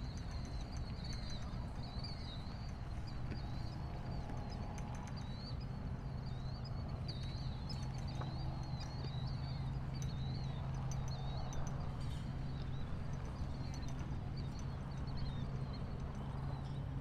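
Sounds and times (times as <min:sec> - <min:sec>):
low hum and rumble: 0:00.0 - 0:17.0
small birds chirping: 0:00.0 - 0:17.0.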